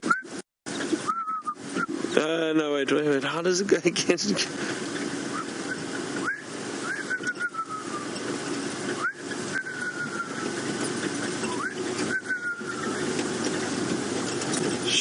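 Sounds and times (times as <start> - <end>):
man whistling bird call: 0.0 - 0.4, 1.0 - 2.0, 5.3 - 8.2, 8.9 - 10.6, 11.4 - 13.1.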